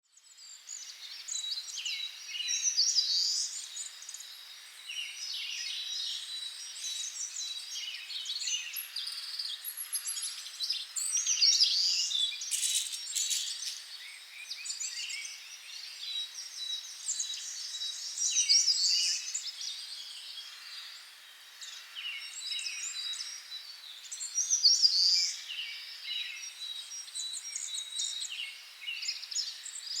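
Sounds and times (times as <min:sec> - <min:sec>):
songbirds singing and chirping: 0:00.0 - 0:30.0.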